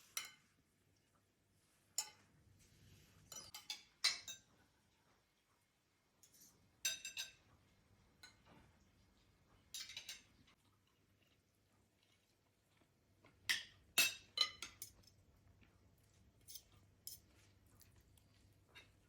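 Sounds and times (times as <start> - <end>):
dishes and metal utensils clinking: 0.0 - 0.6, 1.9 - 2.3, 3.2 - 4.7, 6.2 - 8.7, 9.6 - 10.6, 13.4 - 15.2, 16.4 - 17.5, 18.7 - 19.0.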